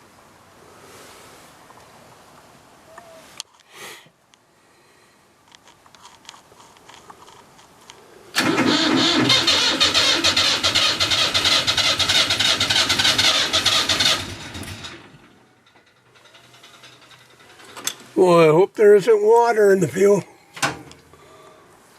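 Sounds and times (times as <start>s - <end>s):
tractor engine cranking on starter: 8.3s - 18.2s.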